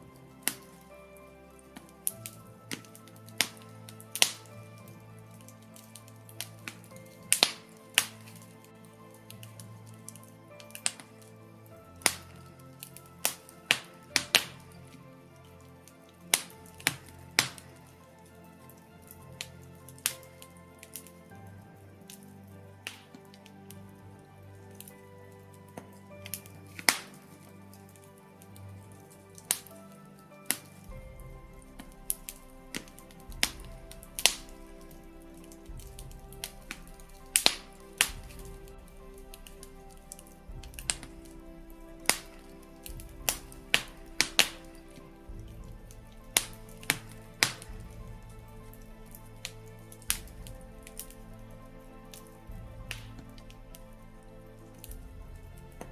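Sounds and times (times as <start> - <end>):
fire crackling: 0.0 - 55.9
soft slow background music: 0.0 - 55.9
sharp pops of burning logs: 1.8 - 5.6, 6.3 - 8.5, 12.0 - 14.9, 16.3 - 17.8, 25.9 - 27.4, 30.5 - 51.2.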